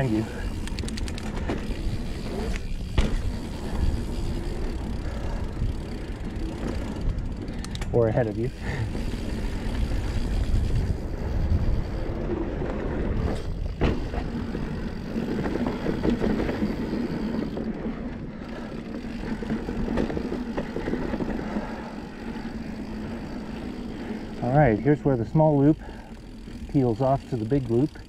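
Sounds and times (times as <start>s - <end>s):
bike tyres on dirt: 0.0s - 28.0s
bike knocking on bumps: 0.5s - 4.8s, 13.3s - 17.6s, 19.1s - 21.7s
wind rumble on microphone: 8.8s - 17.6s.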